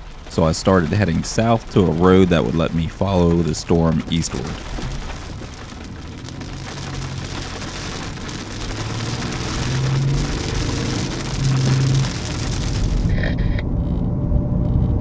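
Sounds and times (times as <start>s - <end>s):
rain pattering on a car: 0.0s - 13.5s
engine and tyre drone: 0.0s - 15.0s.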